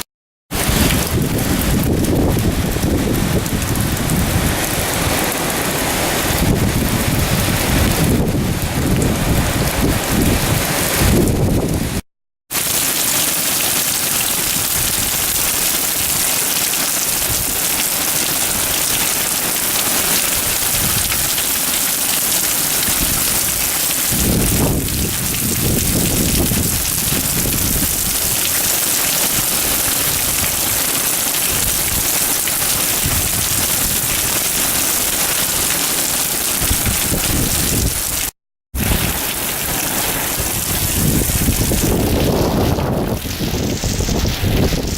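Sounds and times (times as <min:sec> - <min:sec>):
heavy rain pouring: 0:00.0 - 0:44.9.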